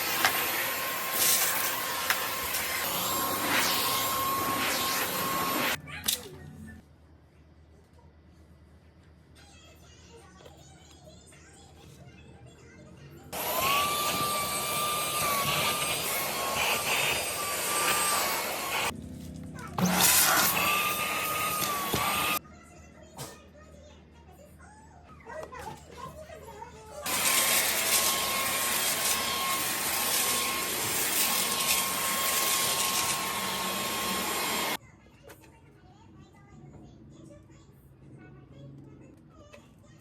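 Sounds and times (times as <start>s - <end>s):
vacuum cleaner motor whining: 0.0s - 5.8s, 13.4s - 18.9s, 19.8s - 22.4s, 27.0s - 34.8s.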